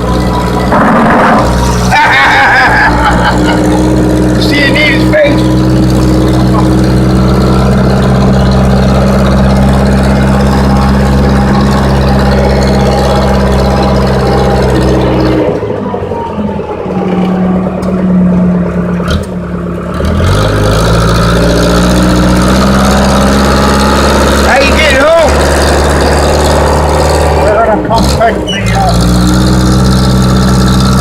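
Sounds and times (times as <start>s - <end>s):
falling whine: 0.0s - 19.8s
diesel engine droning: 0.0s - 31.0s.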